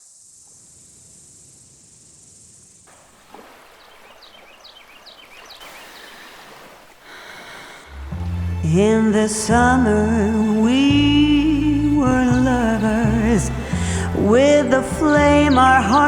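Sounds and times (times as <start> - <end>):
high insect drone: 0.0 - 3.7
even hiss: 0.0 - 16.0
bird chirping: 3.7 - 6.5, 8.0 - 16.0.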